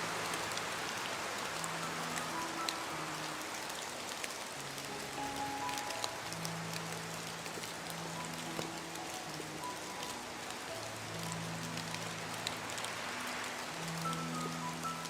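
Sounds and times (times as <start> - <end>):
soft music of low held notes: 0.0 - 15.0
steady rain hiss: 0.0 - 15.0.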